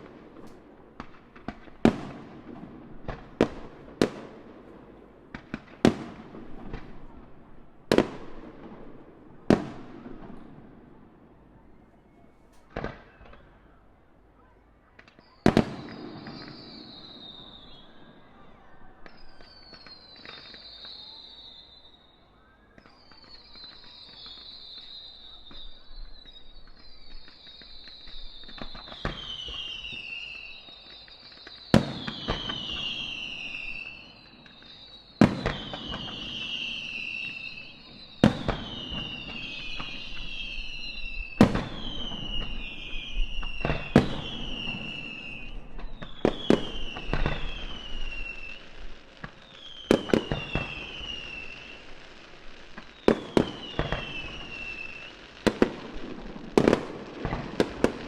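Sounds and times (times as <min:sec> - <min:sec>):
fireworks bangs: 0:00.0 - 0:58.0
fireworks crackling: 0:00.0 - 0:58.0
shrill falling whistles: 0:11.9 - 0:13.8, 0:15.1 - 0:51.9, 0:52.8 - 0:55.3.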